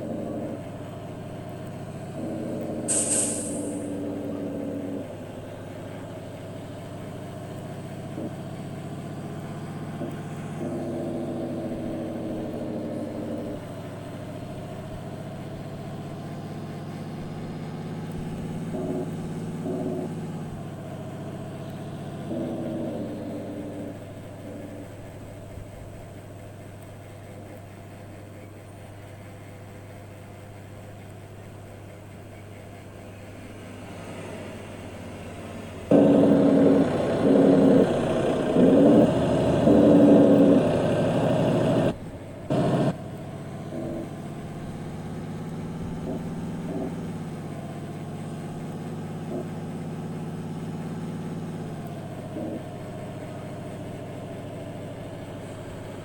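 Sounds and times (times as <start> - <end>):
truck engine running: 0.0 - 56.0
short loud burst: 2.9 - 4.0.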